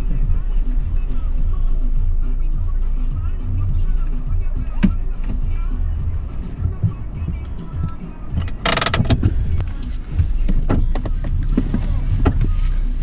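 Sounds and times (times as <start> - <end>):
vehicle engine rumbling: 0.0 - 13.0
knocks and rattles: 6.5 - 9.6.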